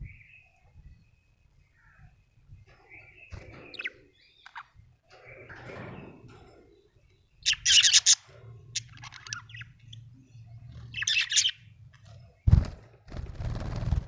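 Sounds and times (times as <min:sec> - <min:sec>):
budgerigar twittering: 0:07.4 - 0:10.1, 0:10.9 - 0:11.7.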